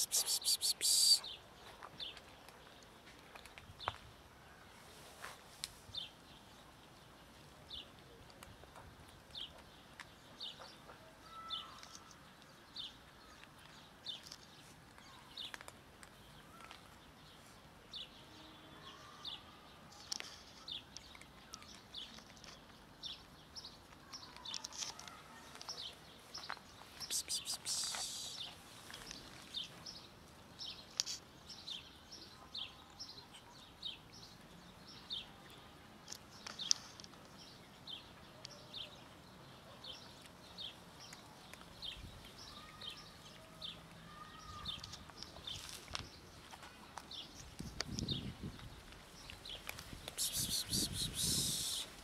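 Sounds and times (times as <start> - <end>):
small bird chirping: 0.0 - 1.4, 18.9 - 30.0, 30.6 - 34.4, 47.1 - 52.0
cats crunching dry kibble: 0.1 - 4.1, 11.8 - 17.6, 20.0 - 31.2, 40.1 - 44.0, 44.6 - 52.0.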